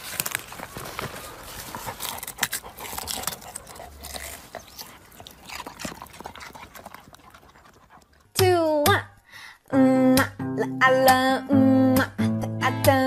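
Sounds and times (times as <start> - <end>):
dog scrabbling in soil and leaves: 0.0 - 8.1.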